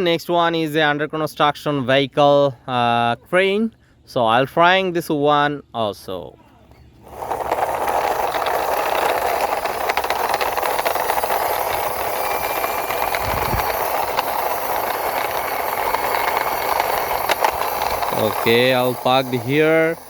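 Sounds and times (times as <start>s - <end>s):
toy truck wheels rattling: 6.9s - 20.0s.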